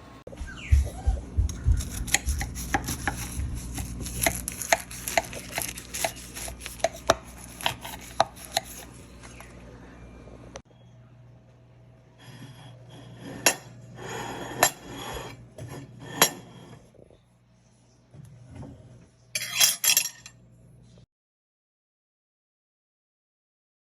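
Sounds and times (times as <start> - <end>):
cutlery clinking on dishes: 19.4 - 20.3.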